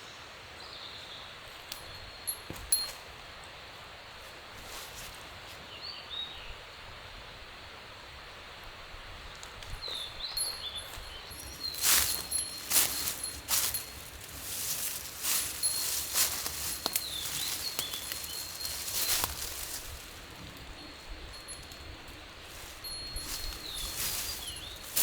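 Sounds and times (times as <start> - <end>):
outdoor ambience: 0.0 - 25.0
rustling crunches: 9.8 - 25.0
thin high chirping: 9.8 - 25.0.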